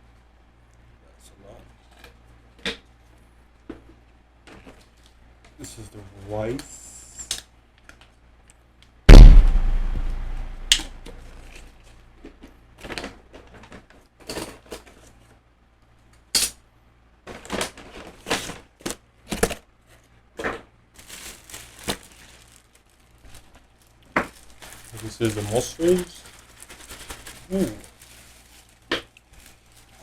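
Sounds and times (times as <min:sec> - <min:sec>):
loud thump: 0:09.1 - 0:11.1.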